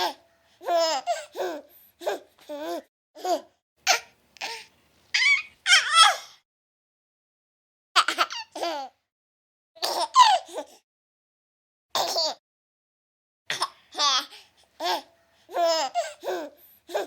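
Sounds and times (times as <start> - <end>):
baby laughing and squealing: 0.0 - 6.3, 9.8 - 10.6, 14.0 - 17.0.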